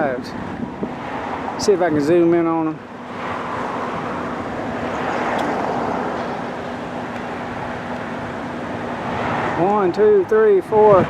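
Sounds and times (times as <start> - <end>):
motor vehicle rushing noise: 0.4 - 2.2, 2.8 - 9.7.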